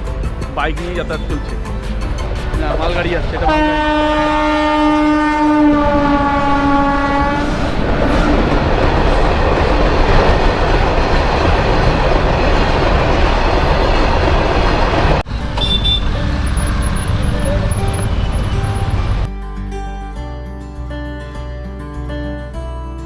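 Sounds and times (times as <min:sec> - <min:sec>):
locomotive horn blast: 0:03.3 - 0:07.7, 0:15.4 - 0:19.3.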